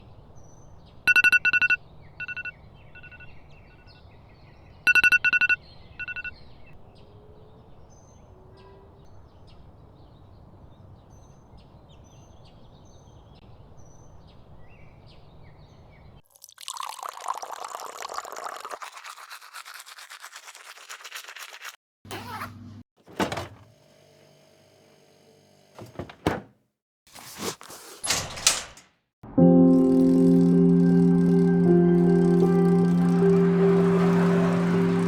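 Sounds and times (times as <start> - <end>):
electronic alarm beeping: 1.1 - 3.3, 4.9 - 6.3.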